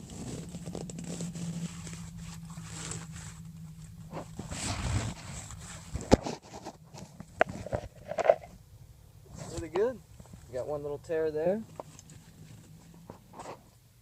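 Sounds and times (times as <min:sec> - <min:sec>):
fabric rustling: 0:00.0 - 0:08.4
steady low hum: 0:00.0 - 0:14.0.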